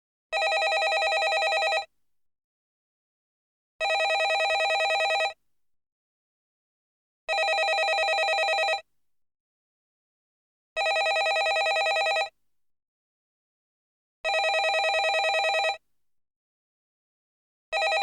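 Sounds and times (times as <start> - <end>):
telephone bell ringing: 0.4 - 1.9, 3.8 - 5.4, 7.3 - 8.8, 10.8 - 12.3, 14.3 - 15.8, 17.8 - 18.0.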